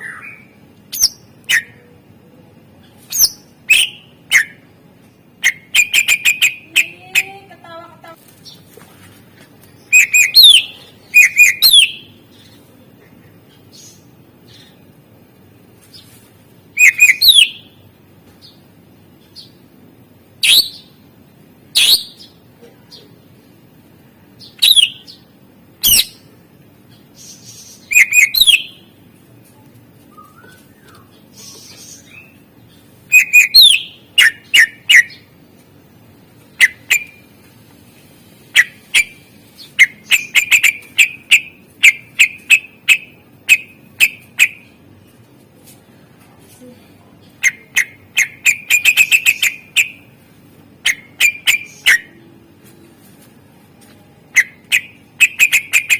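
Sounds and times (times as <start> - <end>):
bird singing chips and whistles: 3.1 - 4.6, 5.4 - 6.9, 9.9 - 12.1, 16.8 - 17.6, 24.6 - 25.0, 27.6 - 28.8, 30.1 - 32.2, 33.1 - 35.2.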